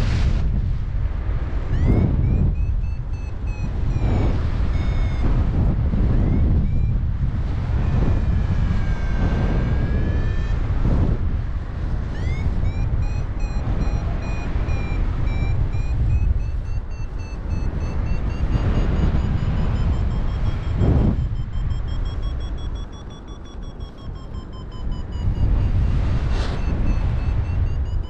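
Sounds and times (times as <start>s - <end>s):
wind on microphone: 0.0s - 28.0s
fast electronic beeping: 1.7s - 5.4s, 6.2s - 7.0s, 12.0s - 28.0s
steady electronic tone: 1.7s - 10.8s, 11.9s - 28.0s.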